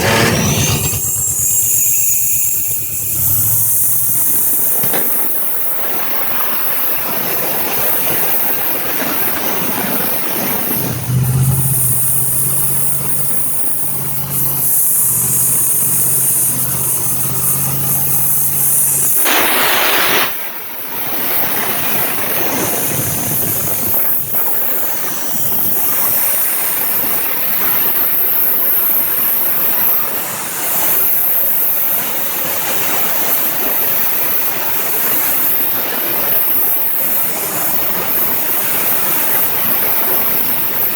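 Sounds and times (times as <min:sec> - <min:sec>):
clutch fan turning: 0:00.0 - 0:07.1, 0:07.7 - 0:19.4
loud rush of noise: 0:00.0 - 0:28.2
engine running steadily: 0:00.0 - 0:40.9.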